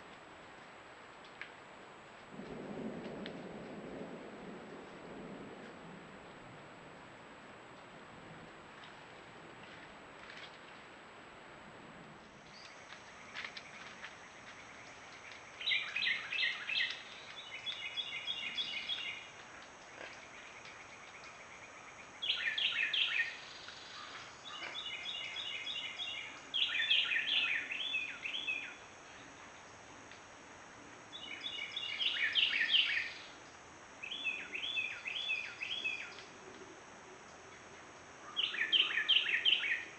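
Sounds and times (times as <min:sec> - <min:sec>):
faint hiss: 0:00.0 - 0:39.9
birds chattering: 0:23.9 - 0:28.5.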